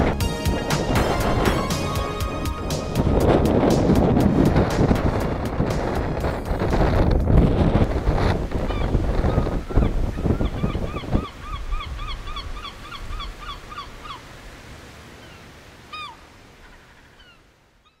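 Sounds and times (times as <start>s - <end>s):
wind buffeting microphone: 0.0s - 13.4s
bird calling: 8.6s - 14.3s, 15.2s - 18.0s.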